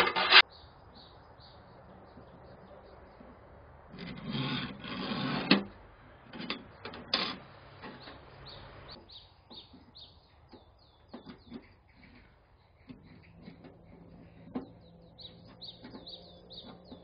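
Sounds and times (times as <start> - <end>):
small birds chirping: 0.4 - 3.7, 7.9 - 17.0.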